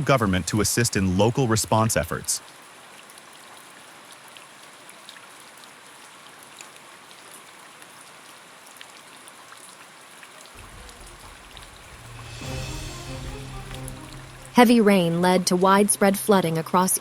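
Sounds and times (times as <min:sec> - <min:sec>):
steady rain falling: 0:00.0 - 0:17.0
low rumble: 0:10.6 - 0:16.4.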